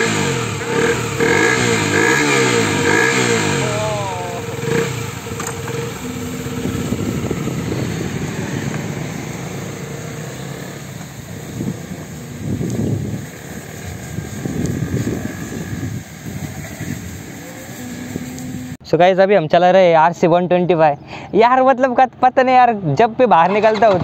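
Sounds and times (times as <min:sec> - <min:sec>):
motorcycle engine revving: 0:00.0 - 0:18.8.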